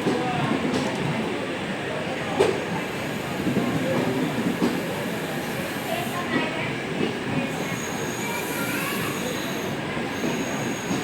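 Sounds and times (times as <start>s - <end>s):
train rumbling on rails: 0.0s - 11.0s
wheels squealing high-pitched: 7.6s - 11.0s.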